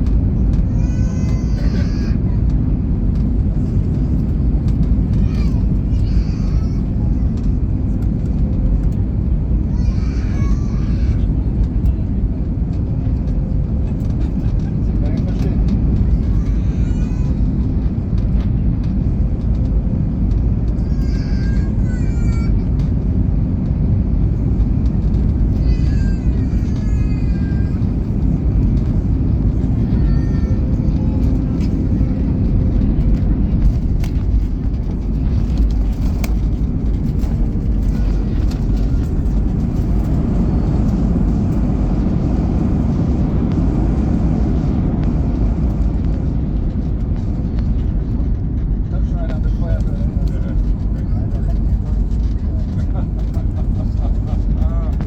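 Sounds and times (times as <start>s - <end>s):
airplane cabin rumble: 0.0s - 55.0s
faint voices: 24.4s - 44.2s, 48.8s - 55.0s.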